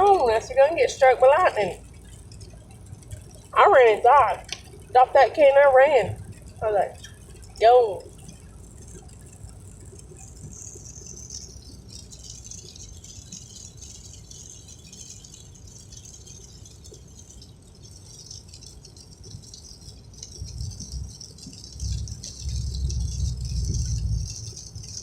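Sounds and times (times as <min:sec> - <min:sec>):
rain pattering: 0:00.0 - 0:25.0
low rumble: 0:21.7 - 0:25.0.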